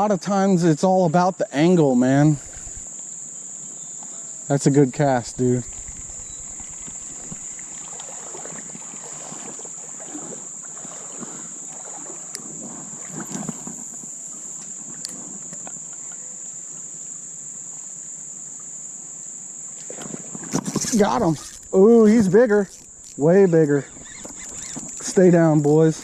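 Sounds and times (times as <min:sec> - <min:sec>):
high-pitched insect chorus: 0:00.0 - 0:26.0
faint splashing: 0:02.2 - 0:02.9, 0:04.9 - 0:13.8
rustling: 0:02.4 - 0:02.9, 0:20.4 - 0:25.2.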